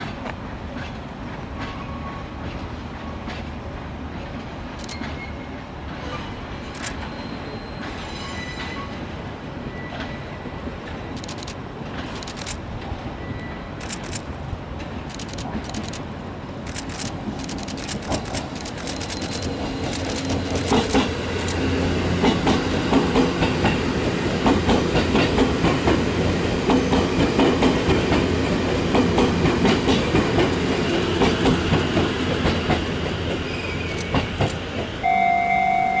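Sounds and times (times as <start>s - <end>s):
electric train rumbling: 0.4s - 35.4s
wheels clacking over rail joints: 4.4s - 5.2s, 6.7s - 7.1s, 11.2s - 13.0s, 13.8s - 35.0s.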